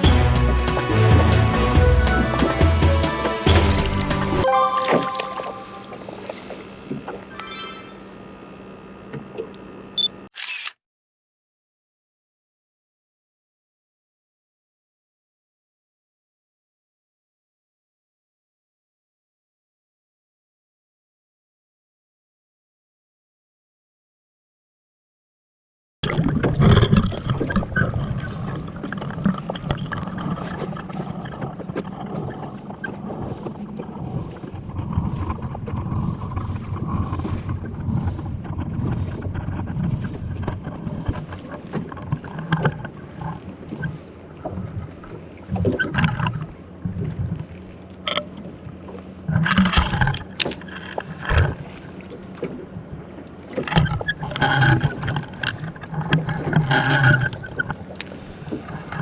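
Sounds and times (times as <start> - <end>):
water washing around boat: 0.0 - 4.6, 26.0 - 59.0.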